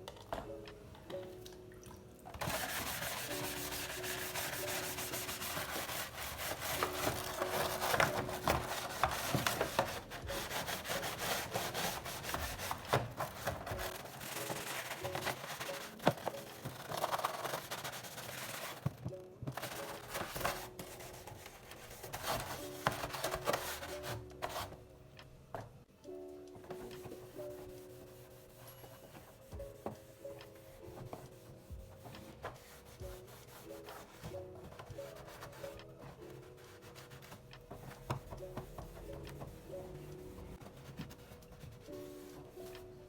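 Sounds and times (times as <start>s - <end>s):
scrubbing rubbing noise: 2.5s - 18.8s.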